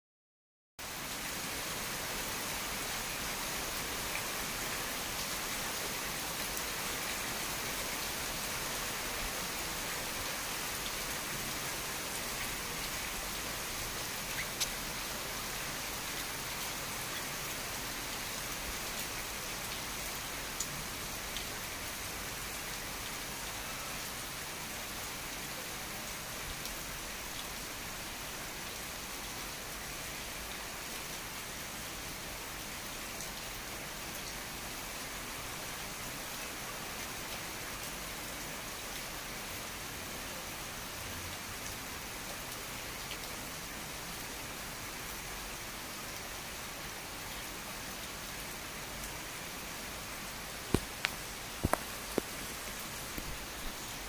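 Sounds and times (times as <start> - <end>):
heavy rain falling: 0.8 - 54.0.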